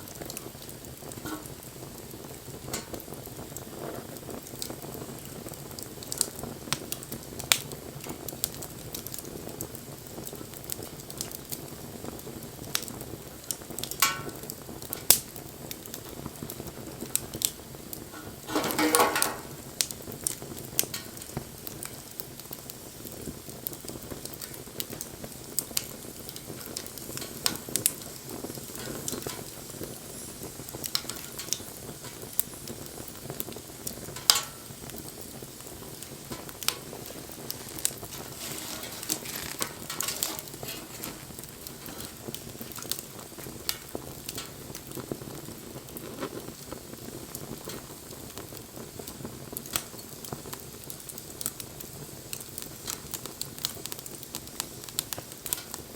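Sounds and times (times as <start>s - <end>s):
fire hiss: 0.0s - 55.9s
wood fire crackling and popping: 0.0s - 55.9s.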